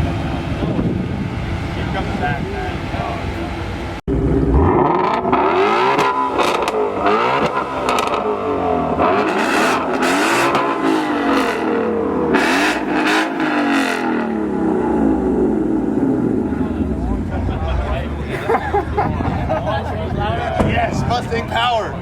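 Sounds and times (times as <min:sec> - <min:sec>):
car engine revving: 0:00.0 - 0:21.6
exhaust bursts: 0:04.1 - 0:18.3.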